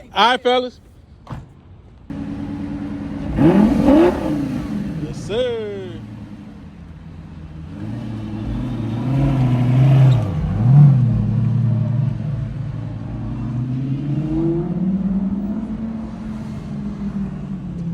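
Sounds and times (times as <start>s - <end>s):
sports car engine revving: 2.1s - 17.9s.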